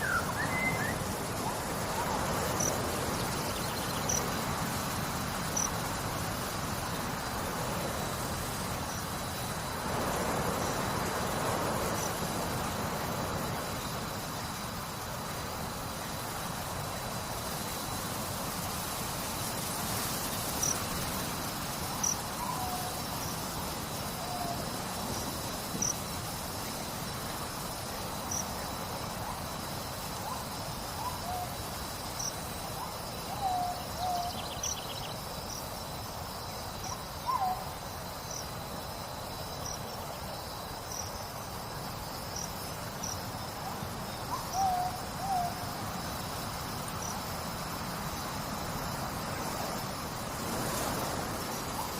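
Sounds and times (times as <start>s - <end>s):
insect chirps: 0.0s - 51.9s
insects trilling: 0.0s - 51.9s
steady hiss: 0.0s - 51.9s
owl hooting: 44.3s - 45.6s.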